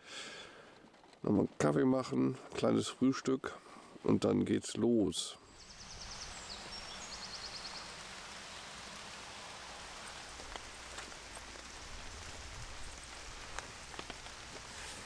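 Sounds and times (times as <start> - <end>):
light rain falling: 5.4 - 15.0
raindrops ticking: 5.6 - 15.0.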